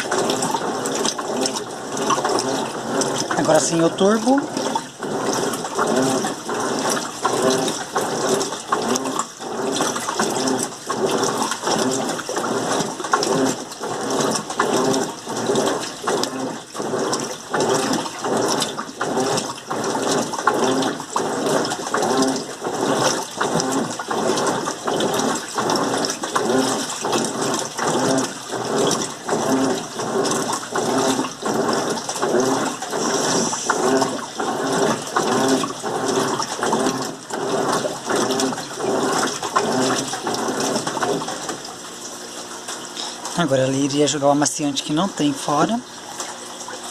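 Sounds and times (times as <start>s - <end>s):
washing machine water sloshing: 0.0s - 46.9s.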